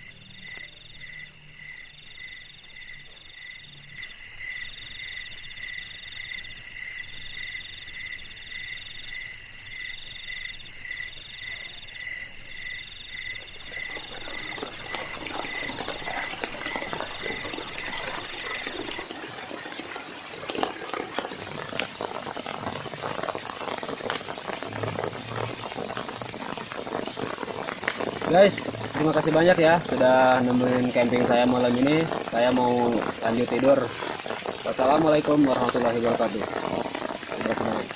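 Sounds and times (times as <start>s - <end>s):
steady high insect trill: 0.0s - 19.1s, 21.2s - 37.9s
insects pulsed high trills: 0.0s - 20.2s, 20.8s - 37.9s
rain pattering and dripping: 12.5s - 37.9s.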